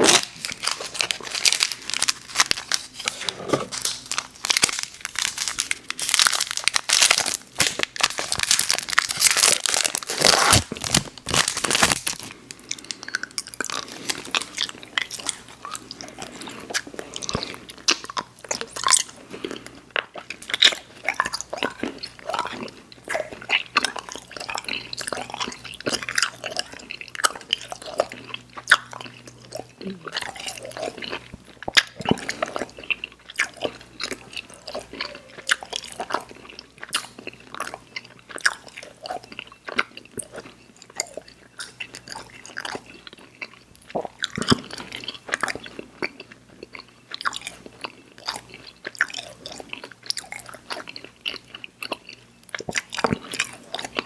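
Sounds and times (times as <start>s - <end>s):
person chewing candy: 0.0s - 54.0s.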